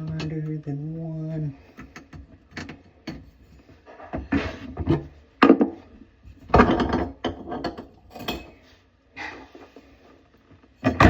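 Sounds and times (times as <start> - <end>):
tools and fittings clattering: 6.4 - 8.6.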